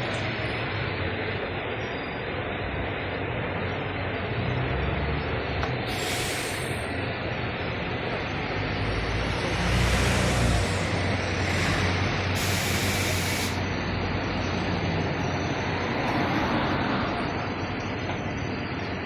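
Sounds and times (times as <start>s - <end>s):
diesel truck engine running: 5.4s - 15.9s
air brake hiss: 5.9s - 7.0s, 12.4s - 13.6s.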